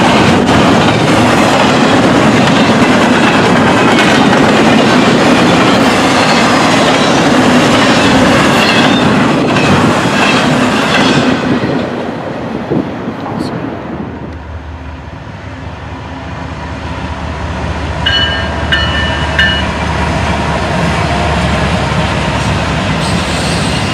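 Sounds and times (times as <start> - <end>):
train wheels clacking over rail joints: 0.0 - 11.9.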